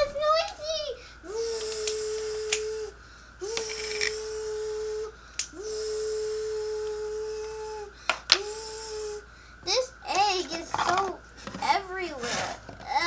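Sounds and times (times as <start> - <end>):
toy blender whining: 0.0 - 13.0
sharp clicks: 1.4 - 4.3, 5.3 - 5.6.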